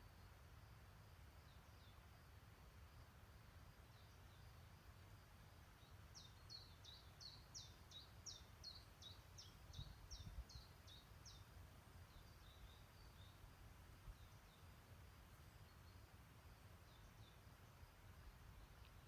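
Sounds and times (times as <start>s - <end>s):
songbird calling: 5.6s - 19.0s.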